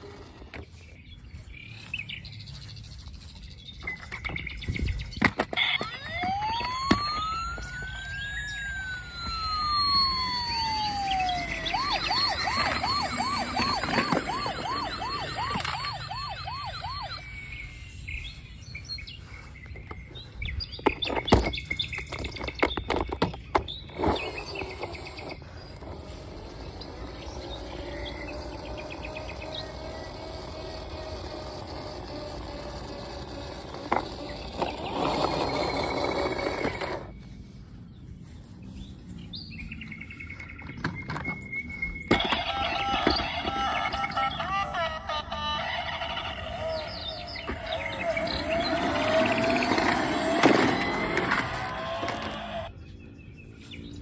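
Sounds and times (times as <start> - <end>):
toy siren wailing and yelping: 5.4 - 18.0, 23.9 - 37.1, 42.1 - 52.7.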